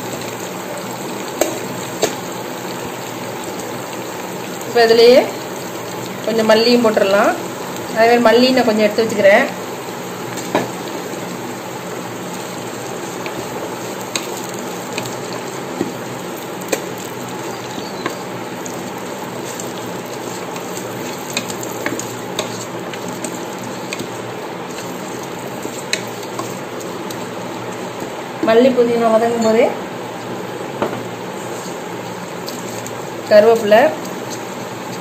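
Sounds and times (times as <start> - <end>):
leaves sizzling in hot oil: 0.0 - 35.0
wooden spatula scraping pot: 19.4 - 28.6.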